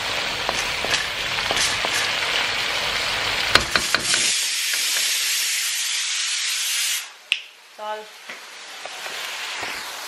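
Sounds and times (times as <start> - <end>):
curry sizzling in a wok: 0.0 - 10.0
wooden spatula knocking on pan: 3.5 - 4.3.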